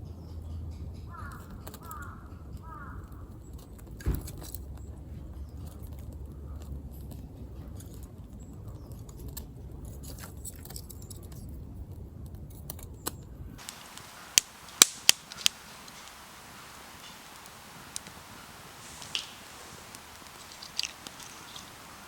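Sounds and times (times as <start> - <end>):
faint ticks: 13.6 - 22.0
sharp clicks: 13.6 - 22.0.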